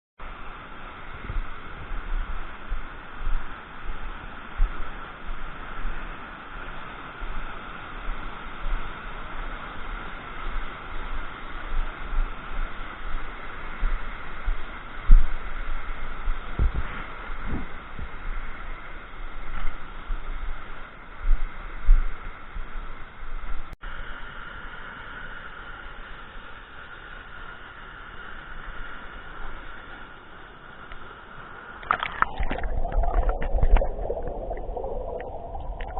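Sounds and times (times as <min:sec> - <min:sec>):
flowing water rushing: 0:00.2 - 0:22.4, 0:28.4 - 0:35.9
wind buffeting microphone: 0:11.1 - 0:18.6, 0:32.2 - 0:35.9.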